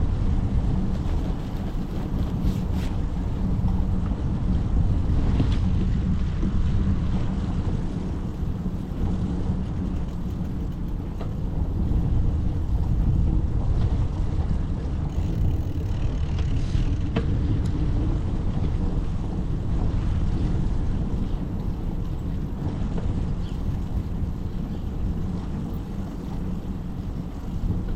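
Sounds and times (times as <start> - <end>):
wind rumbling on microphone: 0.0 - 27.9
faint clicks: 9.7 - 11.4.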